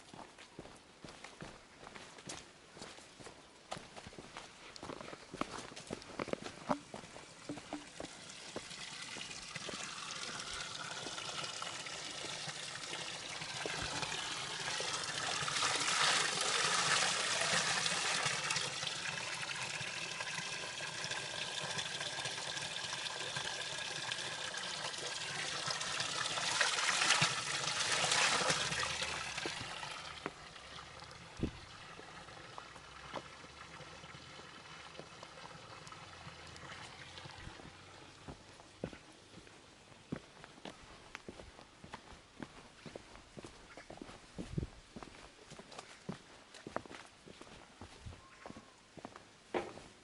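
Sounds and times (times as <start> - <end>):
water pouring into a container: 7.1 - 38.3.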